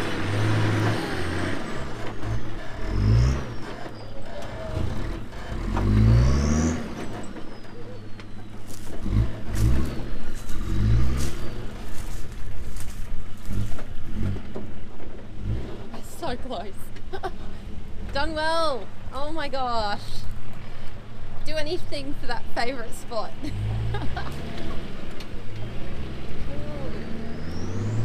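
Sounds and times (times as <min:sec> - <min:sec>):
engine revving: 0:00.0 - 0:16.4, 0:23.5 - 0:28.0.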